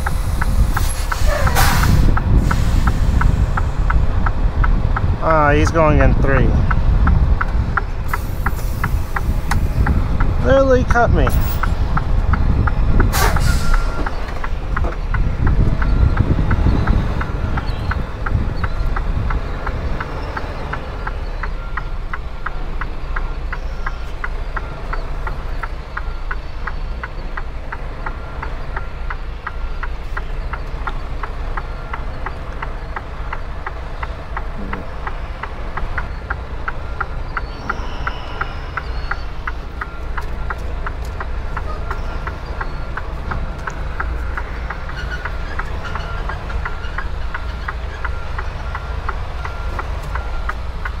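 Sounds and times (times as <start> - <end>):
diesel truck engine running: 0.0 - 51.0
regular high ticking: 0.0 - 51.0
air brake hiss: 0.2 - 3.3, 13.1 - 14.0.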